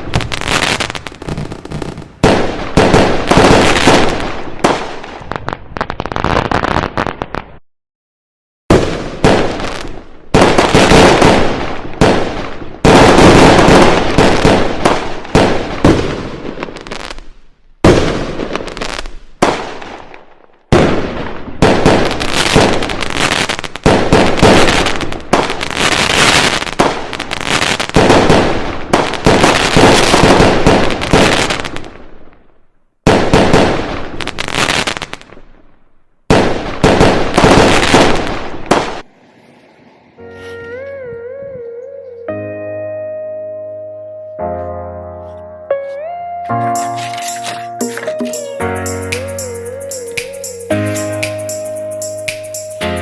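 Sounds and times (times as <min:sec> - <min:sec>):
fireworks bangs and crackles: 0:00.0 - 0:07.6, 0:08.7 - 0:40.1.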